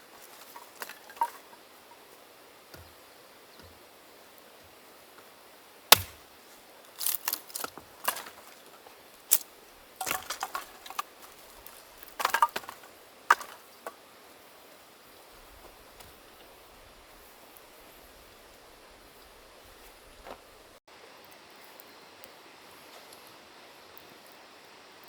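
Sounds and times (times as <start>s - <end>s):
axe chopping wood: 5.9s - 6.3s, 10.0s - 11.1s, 12.0s - 13.6s
wooden pieces clacking: 9.3s - 14.0s.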